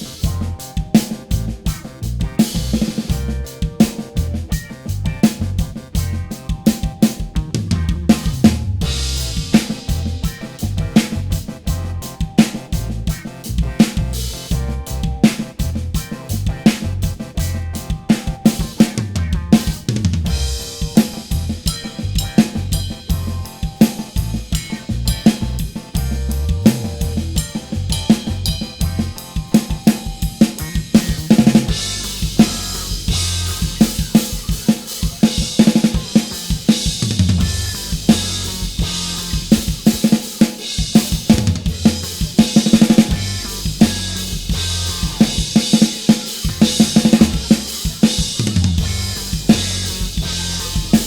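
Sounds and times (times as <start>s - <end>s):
backing track bass line: 0.0s - 51.0s
drum kit groove: 0.0s - 51.0s
cymbals washing: 31.2s - 51.0s.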